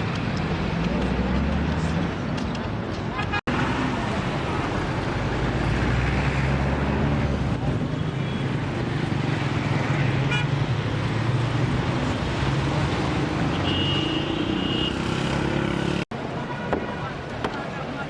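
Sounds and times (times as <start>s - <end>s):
vehicle engines humming: 0.0s - 18.0s
car horn toot: 13.5s - 15.1s.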